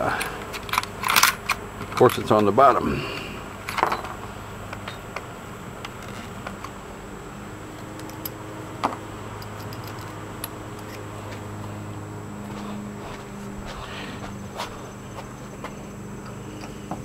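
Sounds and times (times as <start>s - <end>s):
steady low hum: 0.0s - 17.0s
clicks of metal tools handled: 9.4s - 11.0s.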